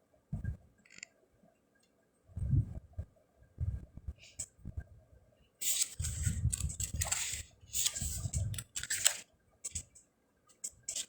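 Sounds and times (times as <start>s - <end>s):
paper pages rustling: 5.6s - 9.8s.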